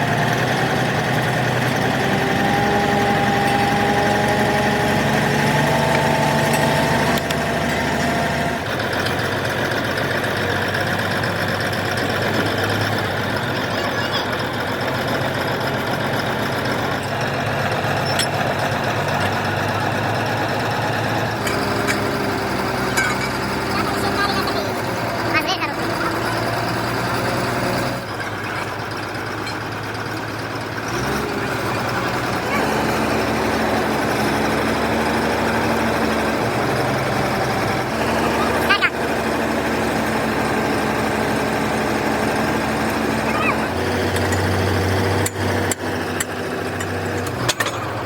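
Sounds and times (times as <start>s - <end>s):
engine running steadily: 0.0s - 48.0s.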